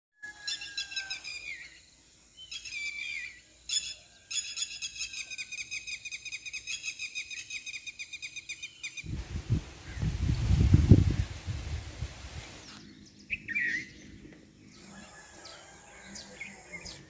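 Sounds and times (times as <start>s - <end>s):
birds chirping: 0.4s - 17.0s
low rumble on microphone: 9.1s - 12.6s.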